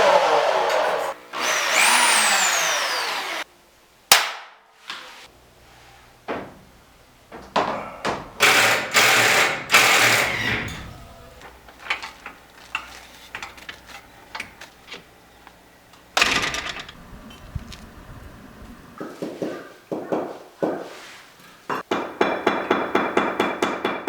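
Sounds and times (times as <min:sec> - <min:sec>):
power tool running in bursts: 0:00.9 - 0:03.4, 0:08.4 - 0:10.8
handling clicks and knocks: 0:10.8 - 0:17.0.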